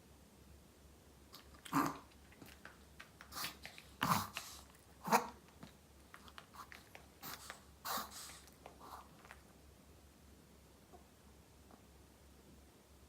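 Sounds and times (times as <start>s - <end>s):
dog mouth clicks: 1.3s - 4.8s, 5.5s - 7.6s
dog breathing noisily: 6.4s - 9.2s.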